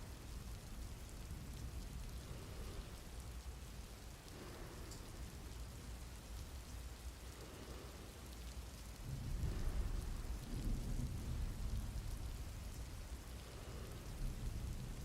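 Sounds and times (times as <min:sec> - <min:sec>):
steady rain: 0:00.0 - 0:15.0
thunder rumbling: 0:08.8 - 0:15.0.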